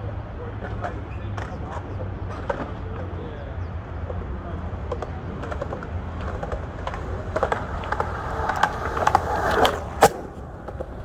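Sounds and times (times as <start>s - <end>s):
skateboard clacks: 0.6s - 3.3s, 4.0s - 11.0s
skateboard rolling: 4.1s - 11.0s.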